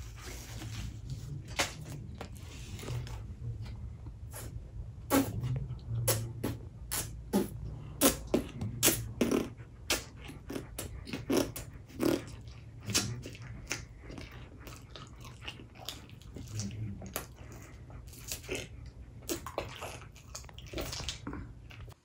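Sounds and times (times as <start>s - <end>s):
chewing and lip-smacking: 5.1s - 22.0s.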